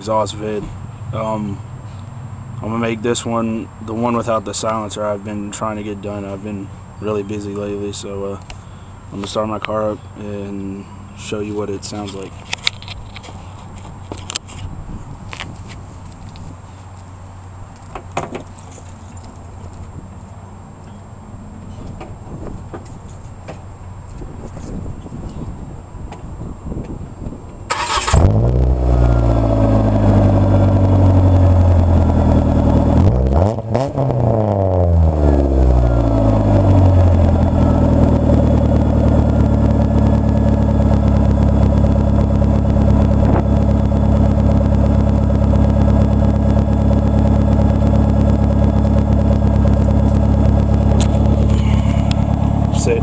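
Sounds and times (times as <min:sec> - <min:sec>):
car engine starting and idling: 0:25.8 - 0:53.0.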